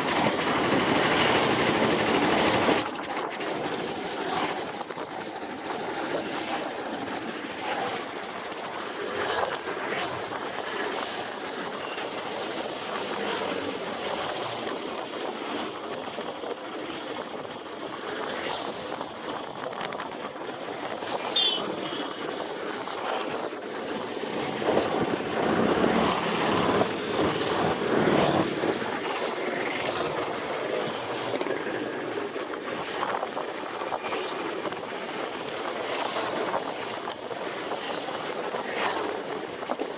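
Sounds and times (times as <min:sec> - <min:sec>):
motorbike road noise: 0:19.7 - 0:32.2.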